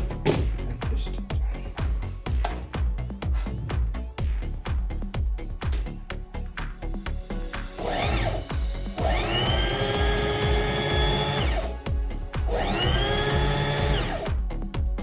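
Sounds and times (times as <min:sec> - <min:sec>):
electric motor whining: 0:07.8 - 0:11.8, 0:12.5 - 0:14.4.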